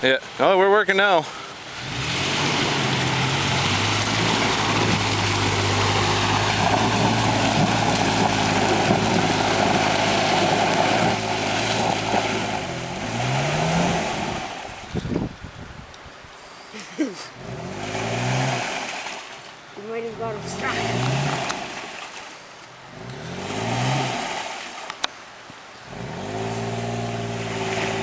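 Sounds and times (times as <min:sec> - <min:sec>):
off-road vehicle engine revving: 0:01.5 - 0:15.3, 0:17.3 - 0:19.3, 0:19.9 - 0:22.1, 0:22.8 - 0:24.8, 0:25.8 - 0:28.0.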